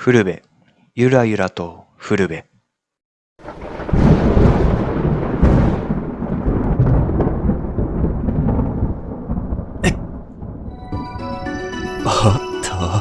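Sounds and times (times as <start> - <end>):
thunder rumble with cracks: 3.4 - 11.1.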